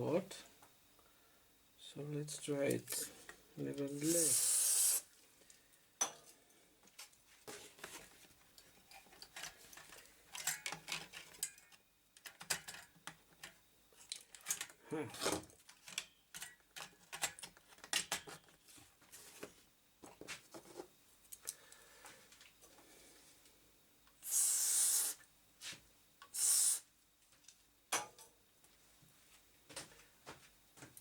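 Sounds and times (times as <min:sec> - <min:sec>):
short loud hissing: 0:04.0 - 0:05.1, 0:24.2 - 0:25.2, 0:26.3 - 0:26.9.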